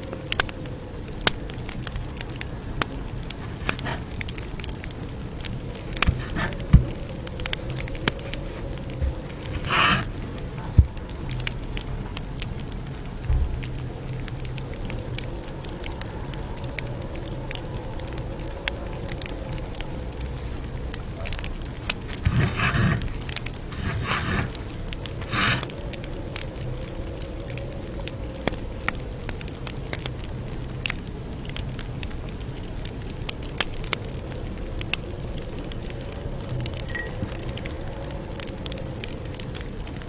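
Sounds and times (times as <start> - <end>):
campfire crackling and popping: 0.0 - 22.1, 22.7 - 40.0
brushing or rustling: 3.3 - 4.1, 5.9 - 10.9, 21.8 - 25.7.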